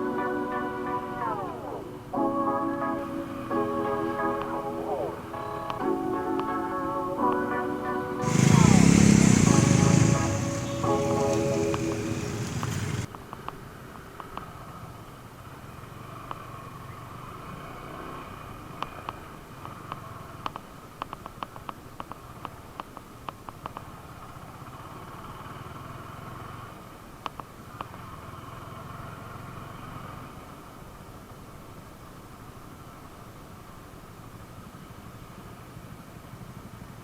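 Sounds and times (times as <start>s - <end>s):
motorcycle engine running: 8.2s - 13.1s.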